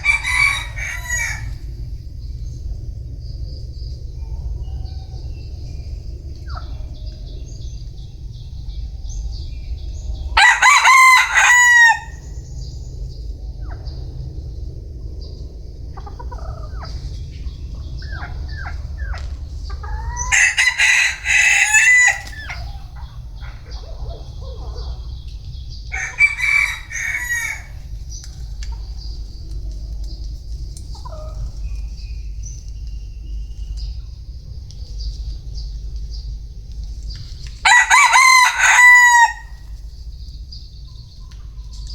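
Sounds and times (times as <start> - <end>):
rooster crowing: 0.0 - 1.7, 10.4 - 12.3, 19.8 - 25.0, 25.9 - 27.9, 37.6 - 39.8.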